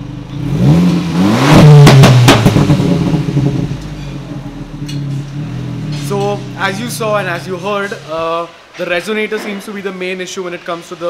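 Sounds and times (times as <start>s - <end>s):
car engine revving: 0.0s - 8.8s
sharp exhaust cracks: 0.0s - 10.9s.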